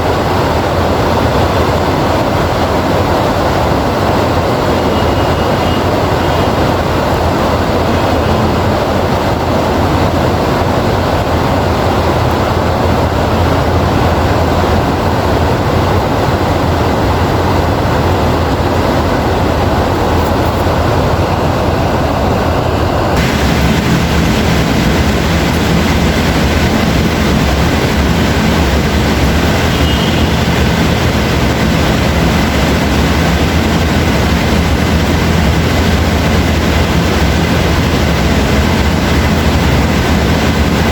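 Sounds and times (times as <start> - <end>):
heavy rain: 0.0 - 40.9
deep low rumble: 23.2 - 40.9.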